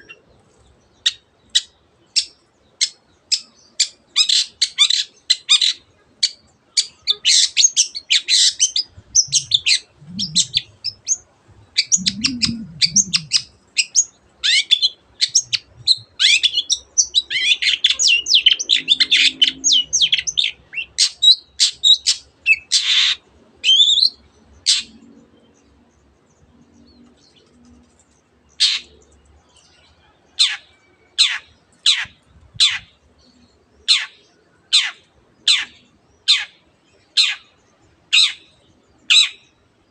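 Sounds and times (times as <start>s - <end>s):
sharp downward-sweeping bird calls: 1.0s - 25.0s, 28.6s - 29.0s, 30.3s - 33.0s, 33.8s - 36.6s, 37.2s - 37.5s, 38.1s - 39.5s.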